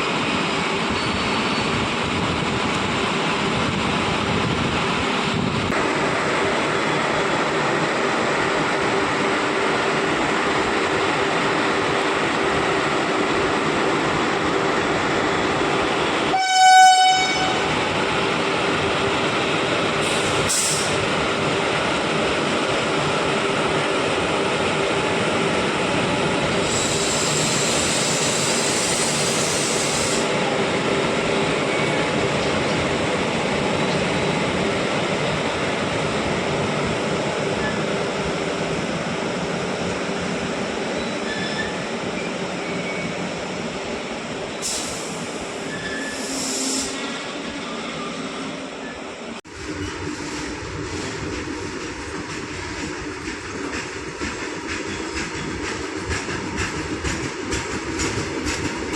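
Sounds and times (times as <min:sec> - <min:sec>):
goods train rolling: 0:00.0 - 0:58.9
train horn blast: 0:16.3 - 0:17.8.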